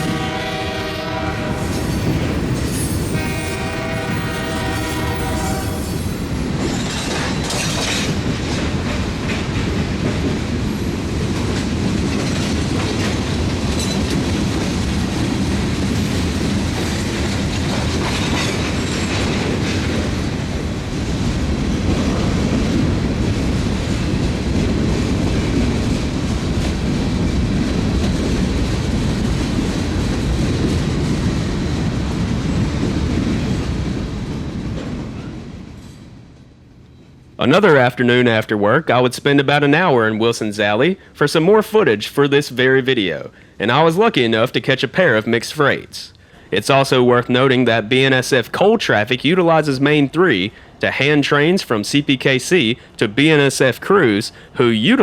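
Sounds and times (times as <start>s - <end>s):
freight train wheels rumbling: 0.0s - 38.8s
wheels clacking over rail joints: 1.6s - 21.1s.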